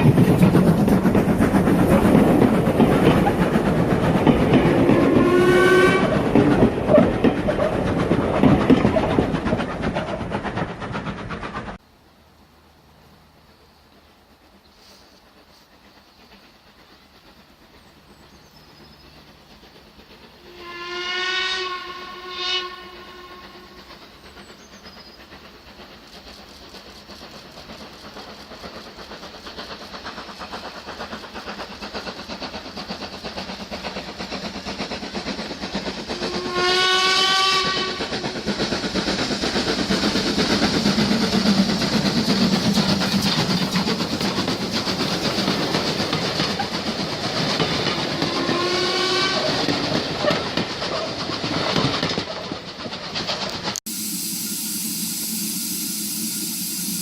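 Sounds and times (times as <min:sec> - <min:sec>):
train running: 0:00.0 - 0:57.0
steam locomotive whistle: 0:04.8 - 0:06.3, 0:20.4 - 0:23.8, 0:36.2 - 0:38.1, 0:48.1 - 0:49.6, 0:53.9 - 0:57.0.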